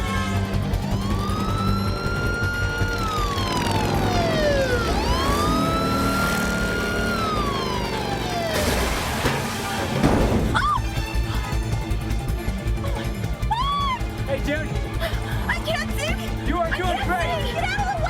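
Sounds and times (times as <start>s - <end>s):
siren wailing: 0.0s - 9.6s.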